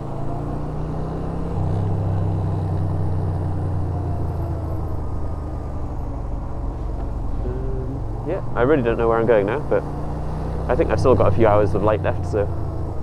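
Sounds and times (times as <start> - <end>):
motorcycle engine running at low revs: 0.0 - 13.0.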